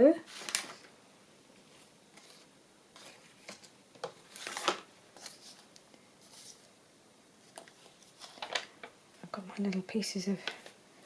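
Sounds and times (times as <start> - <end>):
paper cards rustling and tapping: 0.3 - 0.9, 2.1 - 6.7, 7.5 - 10.8.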